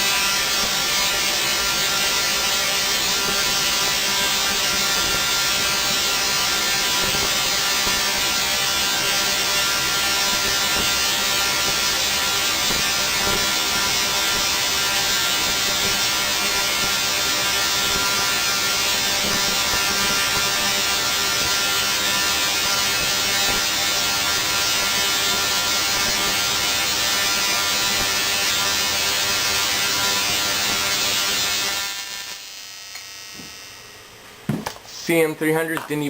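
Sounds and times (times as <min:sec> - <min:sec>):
tesla coil spark buzzing: 0:00.0 - 0:35.2.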